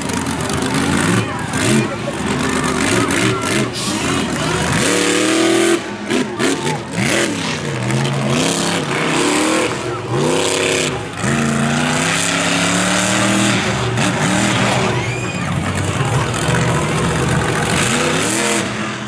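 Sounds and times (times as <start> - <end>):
truck engine revving hard: 0.0 - 19.0.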